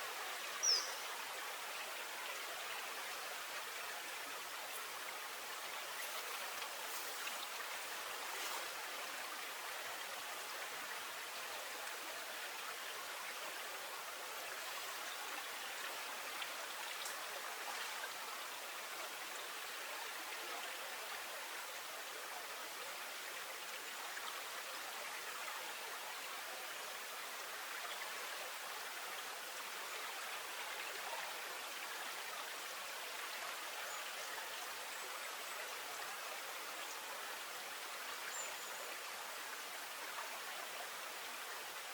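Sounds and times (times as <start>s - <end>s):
flowing water: 0.0s - 41.9s.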